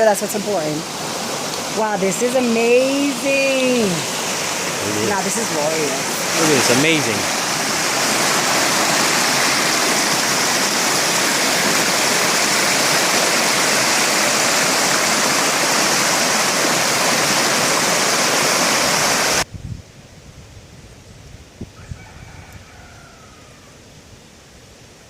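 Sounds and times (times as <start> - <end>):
waterfall rushing: 0.0 - 19.5.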